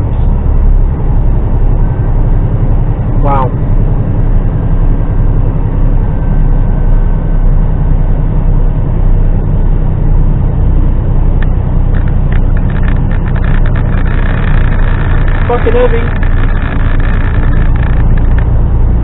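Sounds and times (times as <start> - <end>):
diesel truck engine drone: 0.0 - 19.0
light irregular clicks and rattles: 11.4 - 18.6.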